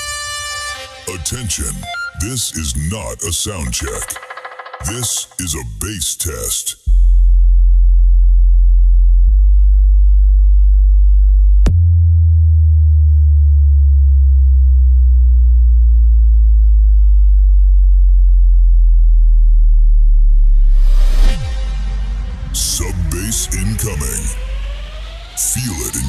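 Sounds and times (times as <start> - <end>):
deep bass test tone: 6.9 - 26.0.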